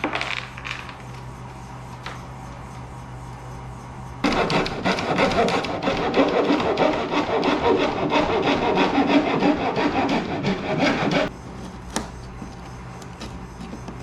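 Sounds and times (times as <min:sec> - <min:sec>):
sanding wood by hand: 0:04.2 - 0:11.3.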